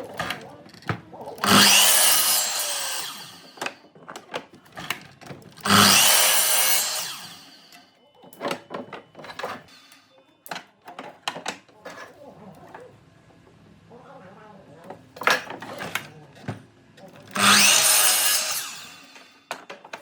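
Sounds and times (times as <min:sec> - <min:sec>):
power tool working wood: 0:01.4 - 0:03.8, 0:05.6 - 0:07.8, 0:17.3 - 0:19.4.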